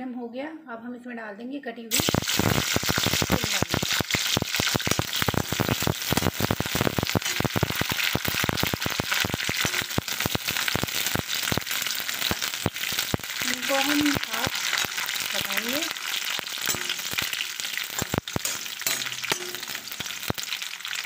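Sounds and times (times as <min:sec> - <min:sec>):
vegetables sizzling in hot oil: 0:01.9 - 0:21.0
metal spatula stirring: 0:11.8 - 0:20.5.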